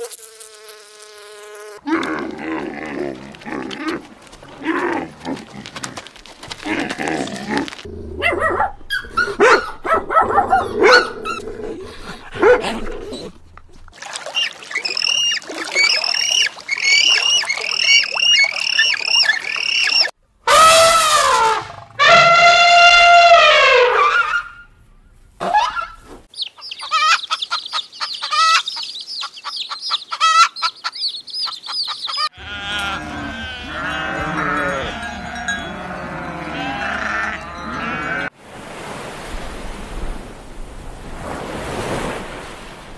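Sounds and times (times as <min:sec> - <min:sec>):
animal calls: 0:14.2 - 0:24.6, 0:26.8 - 0:38.3
goats bleating: 0:32.4 - 0:38.3.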